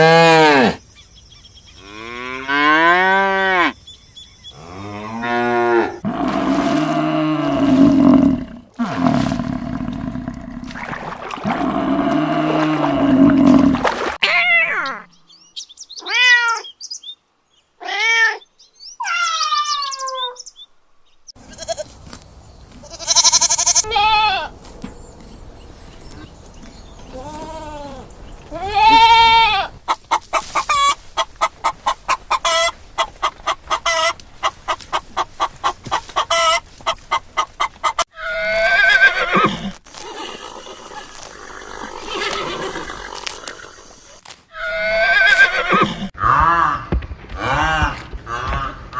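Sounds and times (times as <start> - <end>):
goats bleating: 21.4 - 21.9, 22.8 - 24.5, 27.0 - 29.8.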